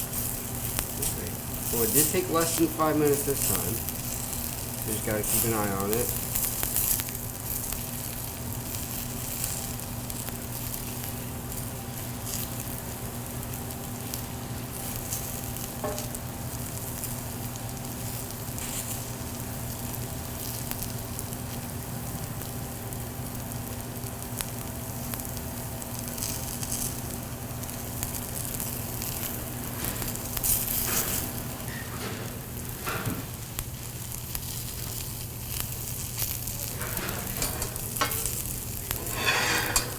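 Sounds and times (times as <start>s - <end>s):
pancakes sizzling in a pan: 0.0s - 31.7s, 33.3s - 39.9s
steady hum: 36.4s - 39.9s.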